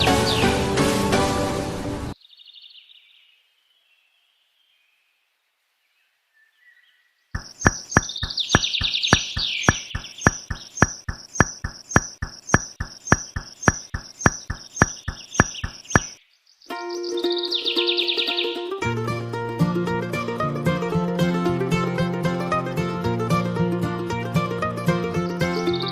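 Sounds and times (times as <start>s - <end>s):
birds chirping: 6.0s - 18.7s, 25.6s - 25.9s
evenly spaced clicking beat: 7.4s - 16.2s.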